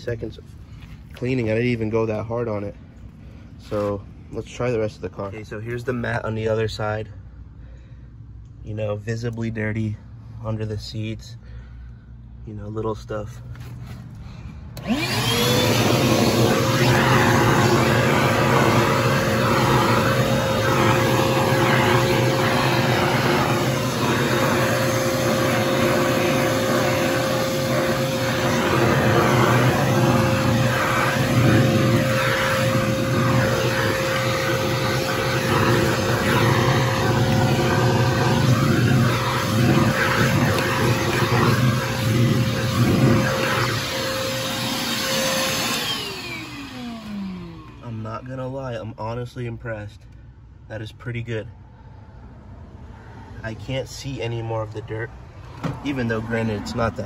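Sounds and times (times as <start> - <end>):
vacuum airflow rushing: 13.7 - 48.3
shop vacuum motor whine: 14.8 - 48.3.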